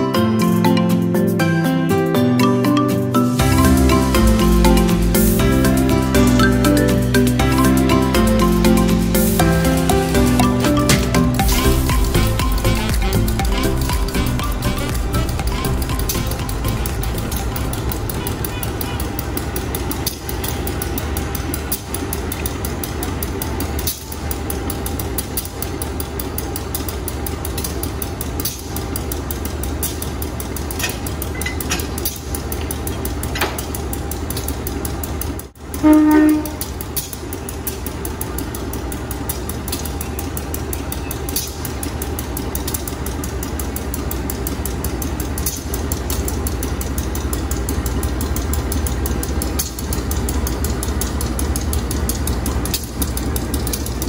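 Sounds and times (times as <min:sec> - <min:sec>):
train rumbling: 0:03.3 - 0:54.0
clicks from train wheels: 0:03.8 - 0:54.0
train horn blast: 0:35.7 - 0:36.7.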